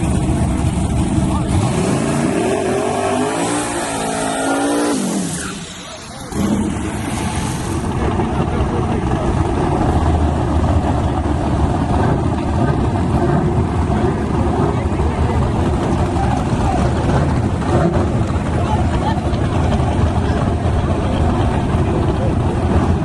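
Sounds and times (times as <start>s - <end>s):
engine at high revs: 0.0s - 23.0s
rough steady engine: 0.0s - 23.0s.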